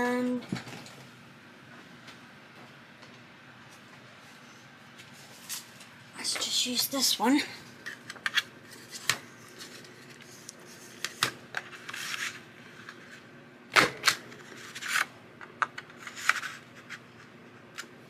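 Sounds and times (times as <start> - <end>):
paper being handled and creased: 8.7 - 13.2.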